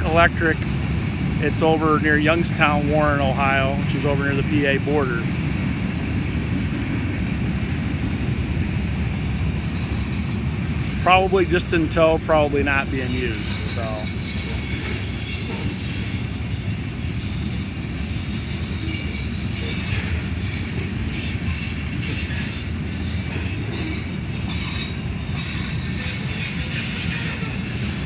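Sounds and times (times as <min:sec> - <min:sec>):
freight train wheels on rails: 0:00.0 - 0:28.0
high-pitched wheel squeal: 0:11.1 - 0:28.0.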